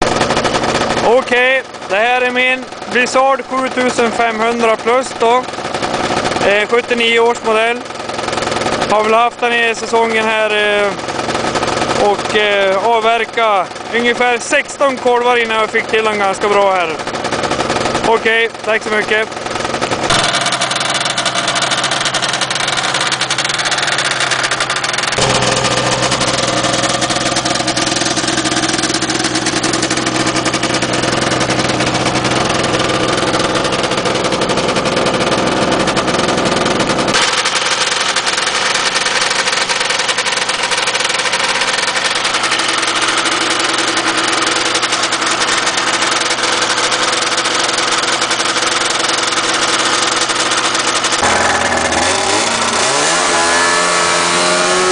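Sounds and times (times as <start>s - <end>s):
snowmobile engine running: 0.0s - 54.9s.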